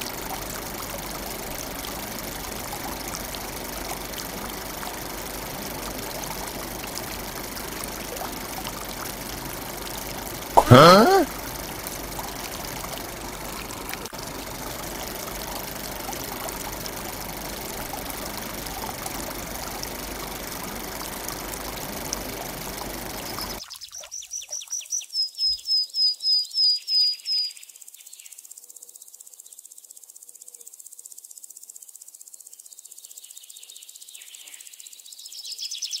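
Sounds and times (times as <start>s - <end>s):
water pouring from toy pump: 0.0s - 24.6s.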